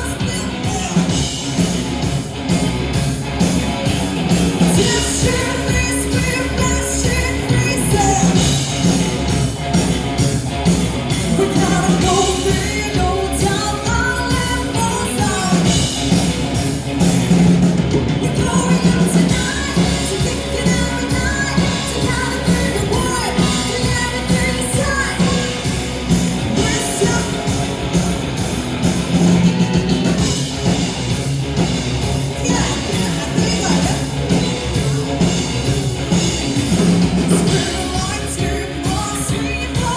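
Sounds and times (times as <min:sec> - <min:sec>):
woman singing: 0:00.0 - 0:01.2, 0:04.7 - 0:08.7, 0:11.3 - 0:15.9, 0:18.2 - 0:25.8, 0:26.4 - 0:27.6, 0:37.3 - 0:39.9
drums: 0:00.0 - 0:39.9
electric guitar: 0:00.0 - 0:39.9.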